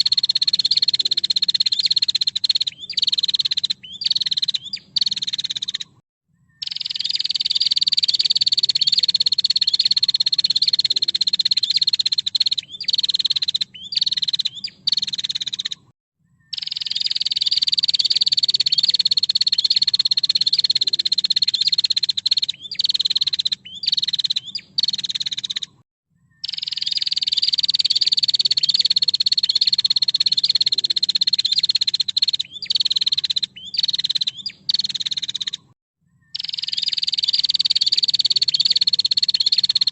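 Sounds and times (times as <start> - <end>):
bird rattling trill call: 0.0 - 6.0, 6.6 - 15.9, 16.5 - 25.8, 26.4 - 35.7, 36.3 - 39.9.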